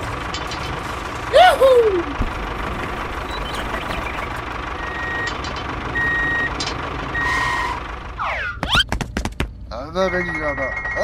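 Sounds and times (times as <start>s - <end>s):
vehicle engine running: 0.0s - 10.6s
reversing alarm beeping: 3.3s - 8.6s.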